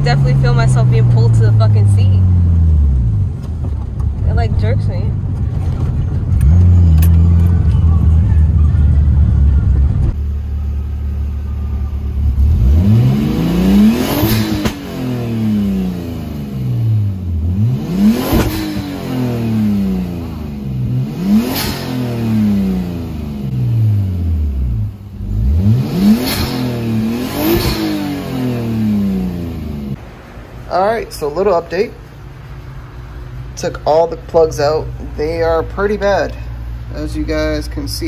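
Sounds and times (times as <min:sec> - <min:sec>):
car engine idling: 0:00.0 - 0:38.0
engine revving with sharp bursts: 0:12.1 - 0:30.0.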